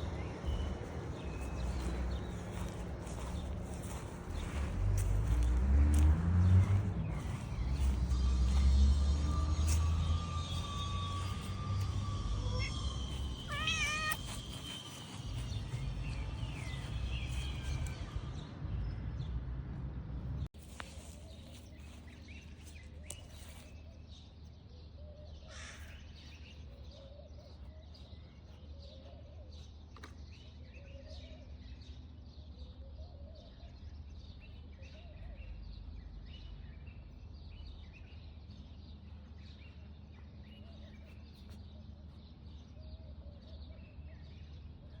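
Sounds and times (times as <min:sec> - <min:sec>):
cat meowing: 0:12.4 - 0:14.3.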